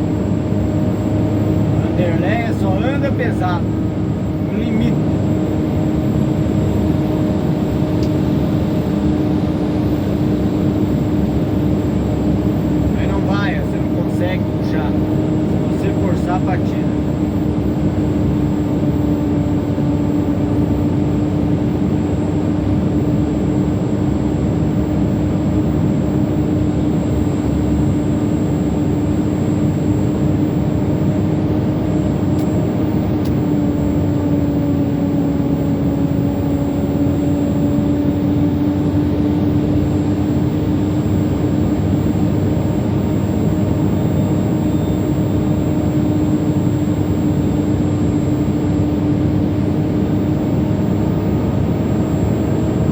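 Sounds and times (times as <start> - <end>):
diesel truck engine droning: 0.0 - 17.1
steady hum: 0.0 - 52.9.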